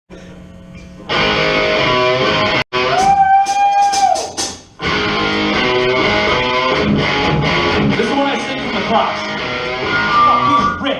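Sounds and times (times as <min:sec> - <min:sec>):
electric guitar playing: 0:01.0 - 0:03.0, 0:04.8 - 0:10.9
live rock band: 0:04.8 - 0:10.9.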